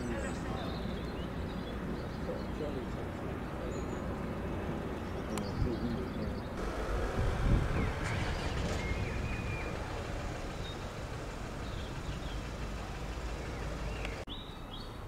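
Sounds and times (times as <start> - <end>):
bird chirps: 0.0 - 6.9, 7.6 - 15.0
heavy diesel engine idling: 6.6 - 14.3.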